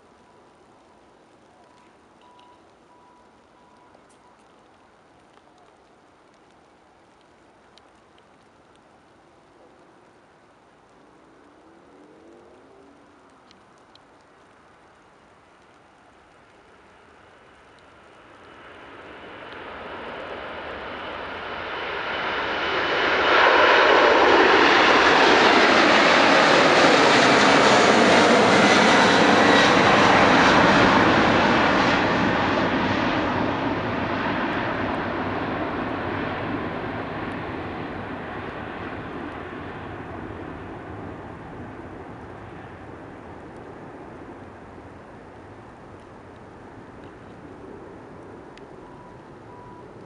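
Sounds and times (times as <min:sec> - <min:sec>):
jet engines passing: 0:16.5 - 0:50.0.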